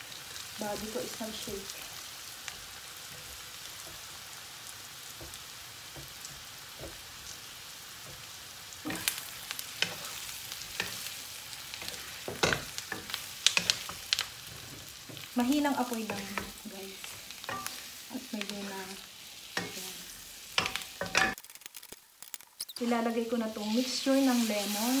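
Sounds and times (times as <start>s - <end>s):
chicken sizzling in a pan: 0.0s - 25.0s
wooden spatula scraping a pan: 8.1s - 19.0s.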